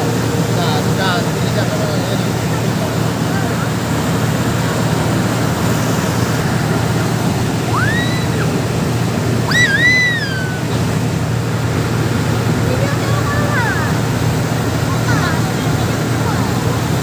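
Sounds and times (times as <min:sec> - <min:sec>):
boat engine running: 0:00.0 - 0:17.0
water rushing against hull: 0:00.0 - 0:17.0
high whistling calls: 0:07.7 - 0:08.6, 0:09.4 - 0:10.8.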